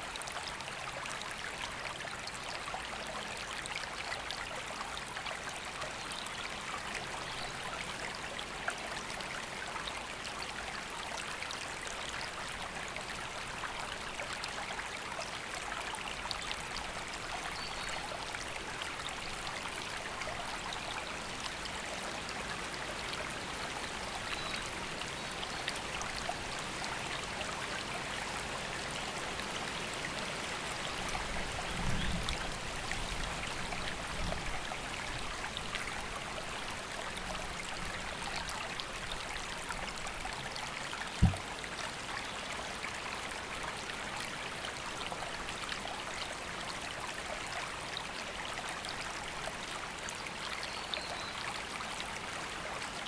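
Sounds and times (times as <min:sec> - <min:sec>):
river water flowing: 0:00.0 - 0:53.0
sharp low thump: 0:41.2 - 0:41.4.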